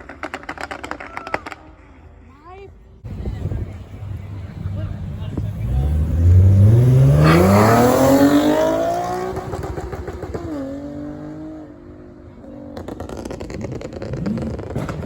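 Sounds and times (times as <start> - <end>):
car engine revving: 3.1 - 15.0.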